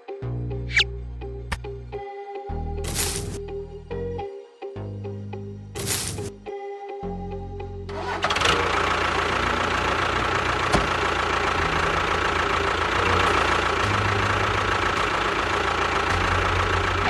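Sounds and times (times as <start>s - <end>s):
engine running: 2.9s - 3.4s, 5.8s - 6.3s, 7.9s - 17.0s.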